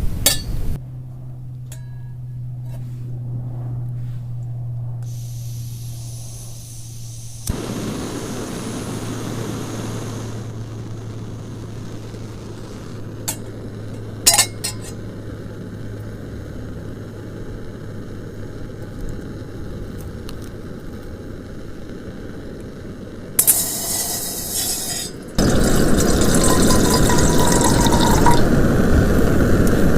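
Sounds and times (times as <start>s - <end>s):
low hum: 0.0s - 20.2s, 21.1s - 29.9s
rain hissing: 5.1s - 29.9s
cookware clinking: 14.3s - 15.0s, 23.4s - 28.4s.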